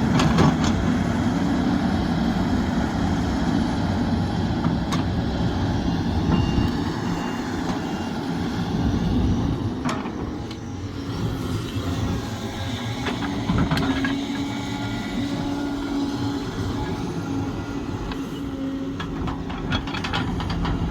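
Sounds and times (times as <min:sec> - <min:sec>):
excavator diesel engine running: 0:00.0 - 0:20.9.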